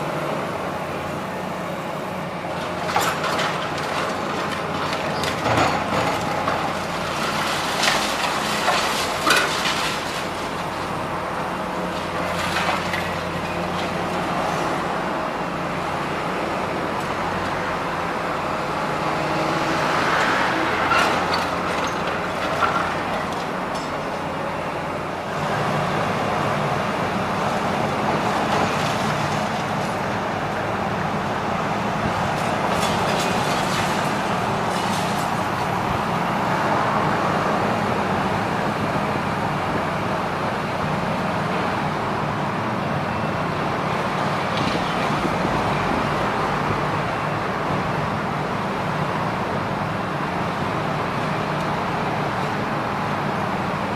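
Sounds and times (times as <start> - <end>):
diesel engine of demolition machinery: 0.0 - 53.9
road traffic noise: 0.0 - 53.9.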